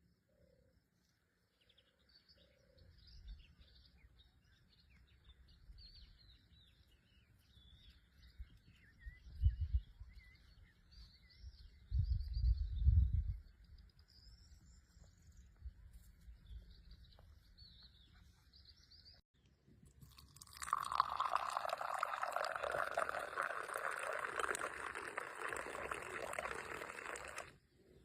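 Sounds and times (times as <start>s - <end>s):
water pouring: 19.9s - 27.6s.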